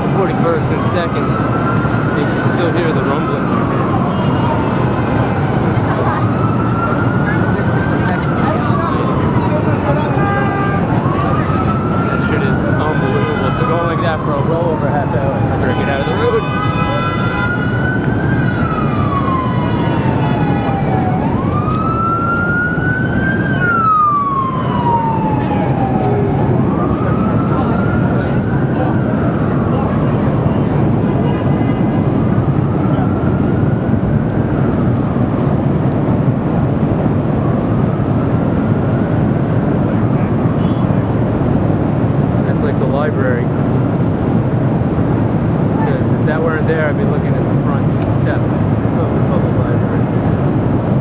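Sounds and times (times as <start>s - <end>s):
siren wailing: 0.0s - 51.0s.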